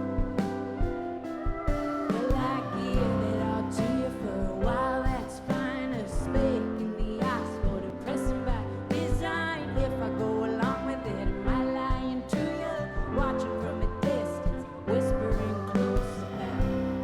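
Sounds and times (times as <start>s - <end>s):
live band playing: 0.0s - 17.0s
woman singing: 0.0s - 17.0s.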